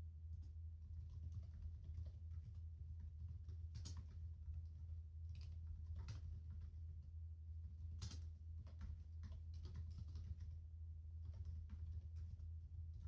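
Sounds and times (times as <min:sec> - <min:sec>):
office background hum: 0:00.2 - 0:13.0
laptop keyboard typing: 0:01.0 - 0:06.8, 0:07.7 - 0:10.6, 0:11.2 - 0:13.0.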